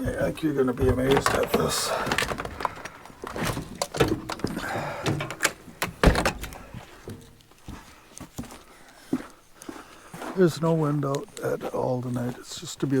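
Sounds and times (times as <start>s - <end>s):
car door opening and shutting: 0.8s - 6.7s.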